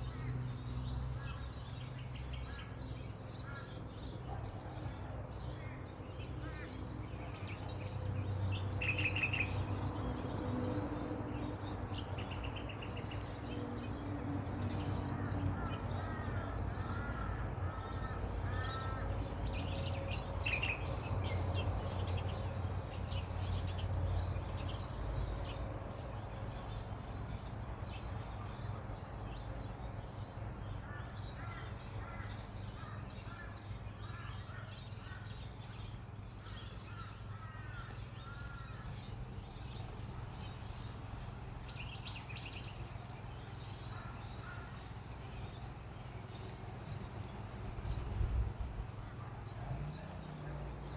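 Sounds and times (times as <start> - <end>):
crow cawing: 15.6 - 19.0.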